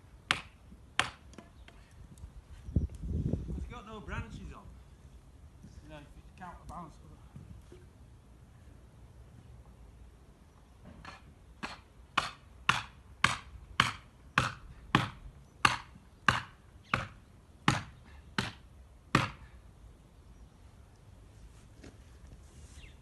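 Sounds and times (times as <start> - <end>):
hammer striking felling wedges: 10.9 - 19.6.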